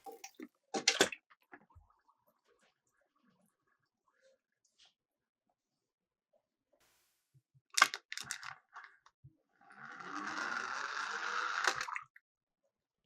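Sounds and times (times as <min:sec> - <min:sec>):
toy cars clicking on plastic track: 0:07.8 - 0:08.7, 0:09.9 - 0:11.9
toy cars rolling rattle: 0:09.9 - 0:11.8.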